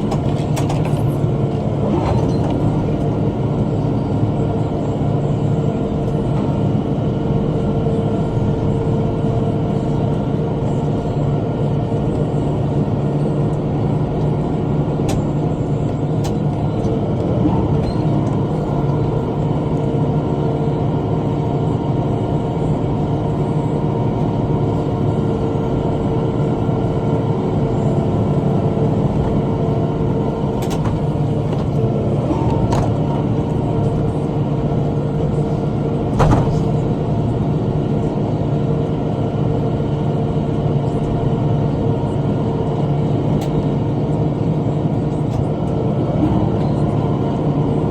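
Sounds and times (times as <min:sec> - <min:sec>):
tractor engine under load: 0:00.0 - 0:06.5, 0:14.9 - 0:19.6, 0:28.9 - 0:38.2.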